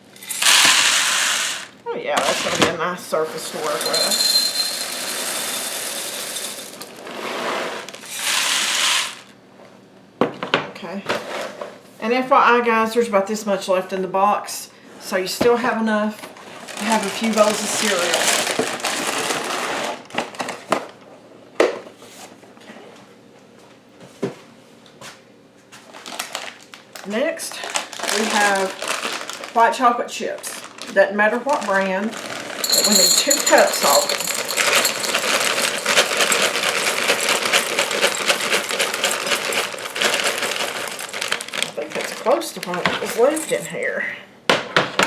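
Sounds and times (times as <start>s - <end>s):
chocolate chips clattering into cup: 0.0s - 2.7s, 3.4s - 7.2s, 7.8s - 9.3s, 16.6s - 19.6s, 27.6s - 43.7s
plastic liner crinkling: 25.9s - 43.3s.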